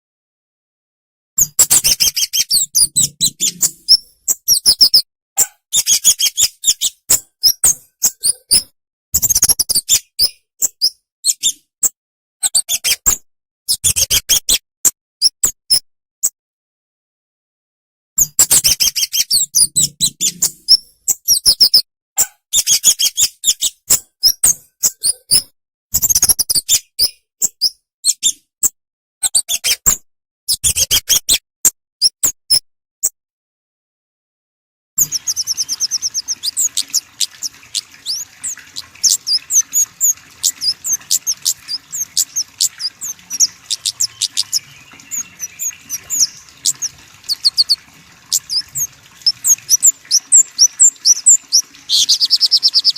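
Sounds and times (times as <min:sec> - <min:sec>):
songbirds chirping: 0:35.0 - 0:52.9.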